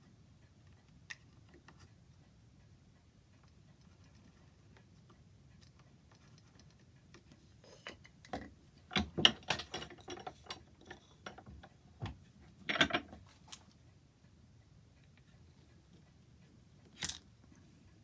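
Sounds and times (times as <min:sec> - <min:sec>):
sharp clicks and knocks: 0:05.6 - 0:13.7.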